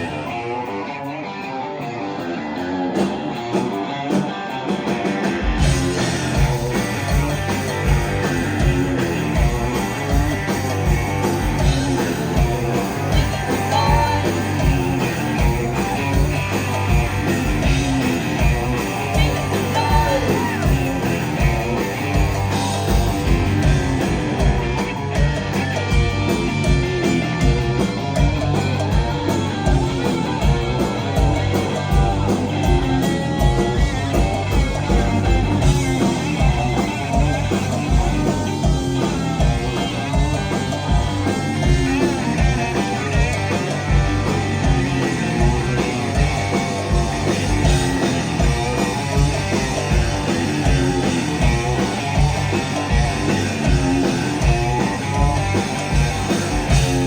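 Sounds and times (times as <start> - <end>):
rock band playing: 0.0 - 57.0
person singing: 13.1 - 14.6, 19.0 - 20.9.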